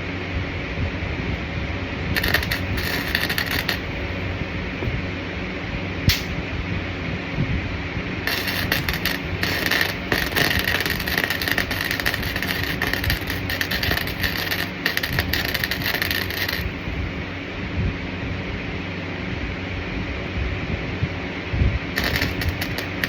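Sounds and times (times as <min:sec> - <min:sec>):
low steady rumble: 0:00.0 - 0:23.0
welding arc crackling: 0:02.1 - 0:05.0, 0:06.1 - 0:06.4, 0:08.2 - 0:17.2, 0:22.0 - 0:23.0.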